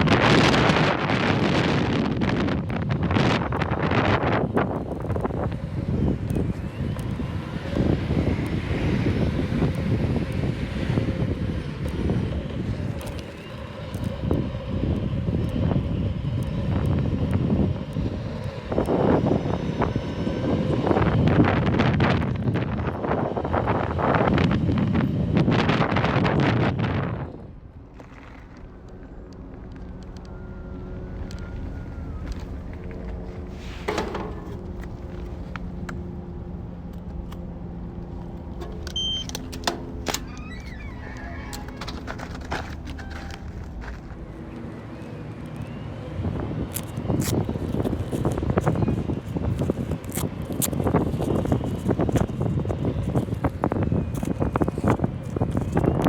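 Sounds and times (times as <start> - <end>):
faint motor hum: 0.0 - 56.0
low riding rumble: 0.0 - 56.0
wind buffeting microphone: 0.0 - 56.0
clicks: 38.2 - 43.7
short high beep: 39.0 - 39.3.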